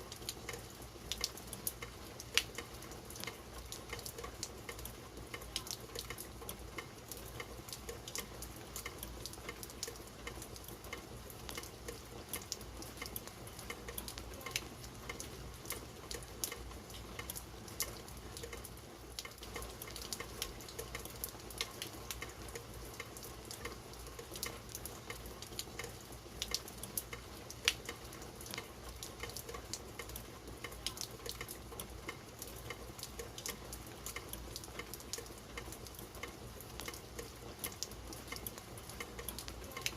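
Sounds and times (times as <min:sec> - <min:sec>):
raindrops ticking on hard surfaces: 0:00.0 - 0:39.9
steady rain falling: 0:00.0 - 0:39.9.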